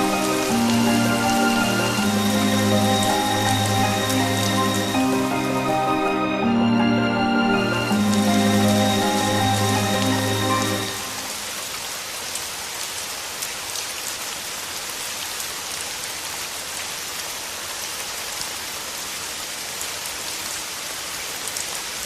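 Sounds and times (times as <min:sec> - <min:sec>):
raindrops ticking: 0:00.0 - 0:05.7
steady rain hiss: 0:00.0 - 0:22.0.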